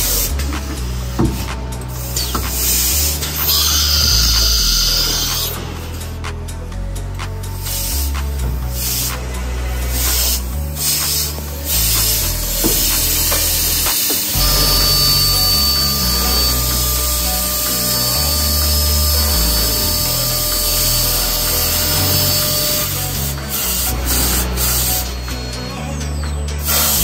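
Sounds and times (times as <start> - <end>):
background music: 0.0 - 27.0
drilling machine high whine: 1.1 - 6.1, 11.1 - 27.0.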